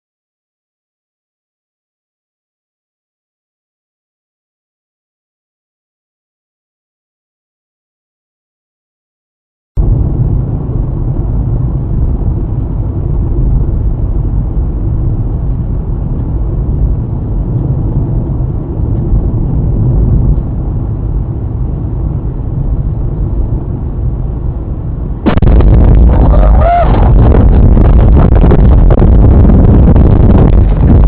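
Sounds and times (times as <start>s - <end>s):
car engine and road noise: 9.8s - 31.0s.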